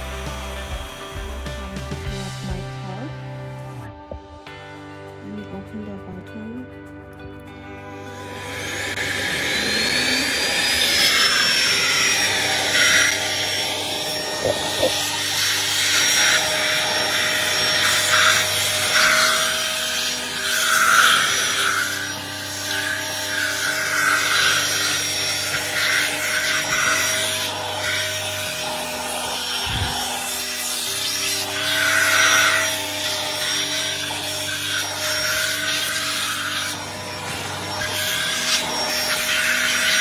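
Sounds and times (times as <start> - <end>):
handheld vacuum motor whine: 0.0 - 3.0, 7.7 - 40.0
vacuum suction noise: 8.2 - 19.5, 28.6 - 30.4.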